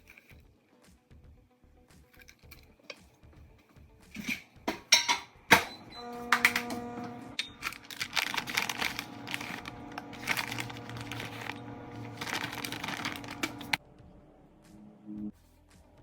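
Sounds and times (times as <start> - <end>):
background music: 0.0 - 16.0
plastic packaging crinkling: 7.4 - 13.8.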